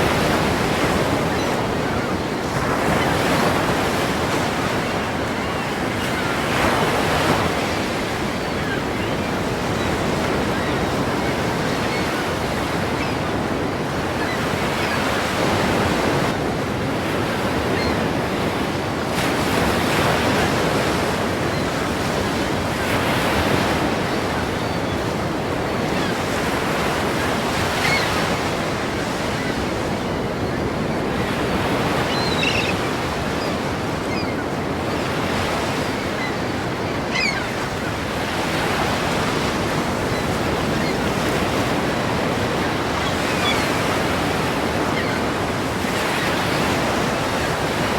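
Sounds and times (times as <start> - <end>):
ocean waves breaking: 0.0 - 47.9.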